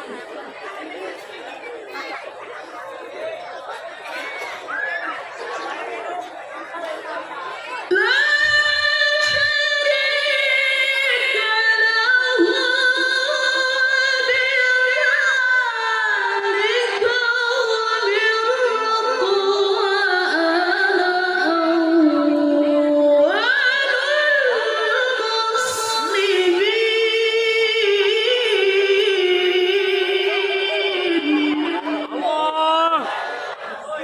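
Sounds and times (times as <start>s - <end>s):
man chanting recitation: 25.8s - 32.2s.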